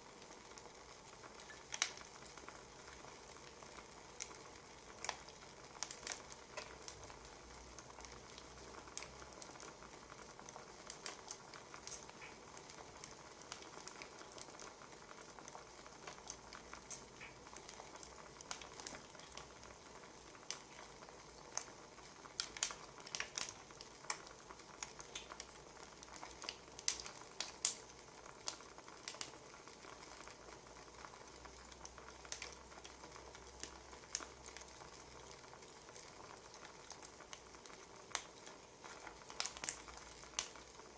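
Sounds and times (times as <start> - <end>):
fire snapping and popping: 0.1 - 40.9.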